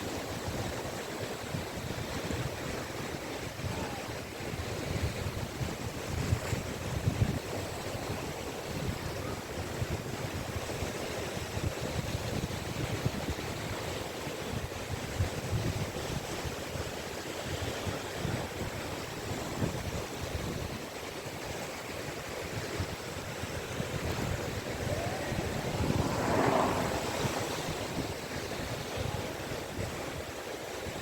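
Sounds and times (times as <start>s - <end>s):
wind rumbling on microphone: 23.4s - 30.0s
waves washing onto beach: 23.9s - 28.6s.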